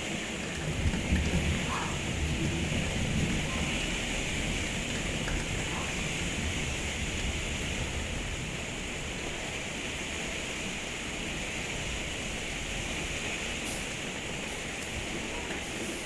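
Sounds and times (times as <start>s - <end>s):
heavy rain falling: 0.0s - 16.0s
low thunder rumble: 0.5s - 9.1s.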